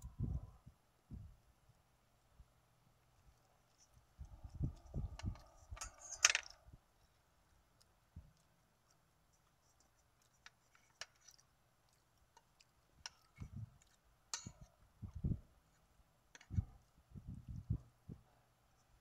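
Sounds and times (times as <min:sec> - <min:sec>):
chewing clicks: 0:07.0 - 0:14.8.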